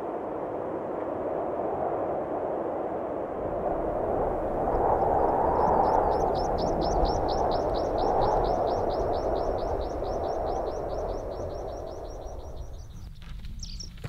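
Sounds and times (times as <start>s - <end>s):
wind rushing: 0.0s - 13.9s
bird chirping rapidly: 5.6s - 14.0s.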